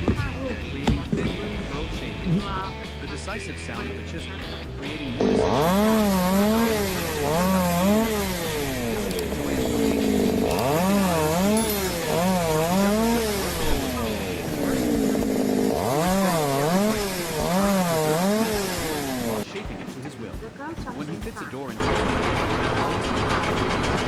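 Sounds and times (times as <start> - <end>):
power tool motor running: 4.8 - 19.4, 21.8 - 24.0.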